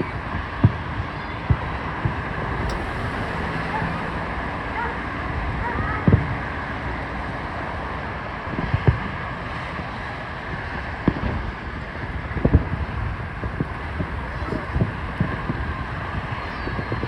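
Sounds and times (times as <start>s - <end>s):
wind noise on microphone: 1.7s - 8.2s, 11.1s - 17.0s
fireworks booming: 2.1s - 6.6s.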